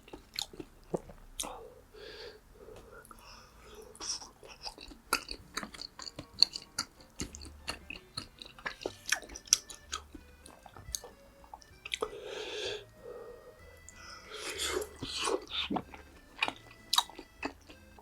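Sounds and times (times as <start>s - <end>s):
food crunching: 0.0s - 1.6s, 3.1s - 12.3s, 13.8s - 18.0s
wet chewing and mouth smacks: 0.0s - 1.6s, 3.9s - 12.1s, 13.8s - 17.9s.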